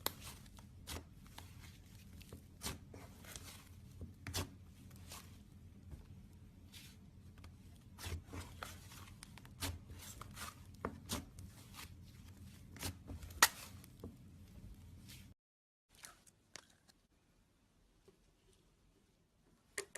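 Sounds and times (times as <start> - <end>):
slime squishing: 0.0 - 14.0.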